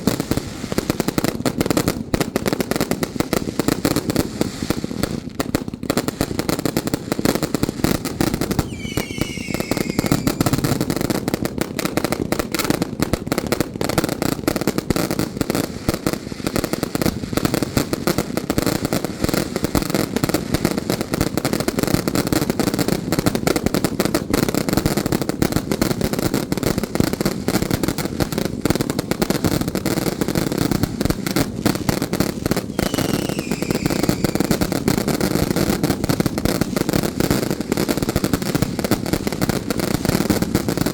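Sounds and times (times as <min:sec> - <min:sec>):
firecrackers crackling: 0:00.0 - 0:40.9
falling whistle: 0:08.6 - 0:10.8, 0:32.8 - 0:34.6.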